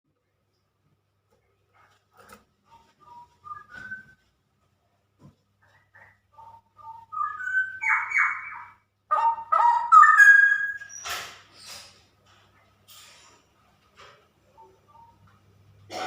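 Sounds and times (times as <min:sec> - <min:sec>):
bird singing warbled phrases: 0:05.6 - 0:11.1, 0:14.5 - 0:15.3.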